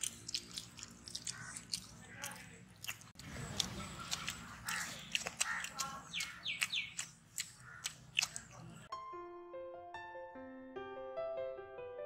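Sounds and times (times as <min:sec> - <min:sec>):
crisp biting and chewing: 0:00.0 - 0:08.8
bird calling: 0:03.8 - 0:08.8.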